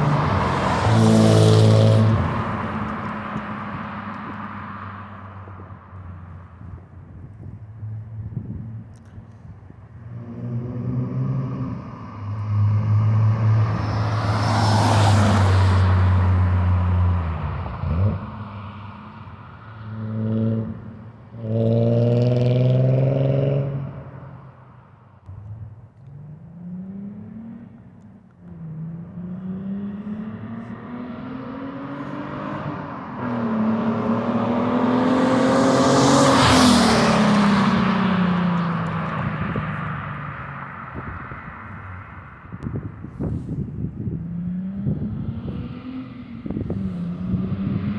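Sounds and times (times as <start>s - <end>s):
car passing by loudly: 0.0s - 5.3s, 10.2s - 20.8s, 28.6s - 42.4s
car engine accelerating hard: 28.5s - 40.1s.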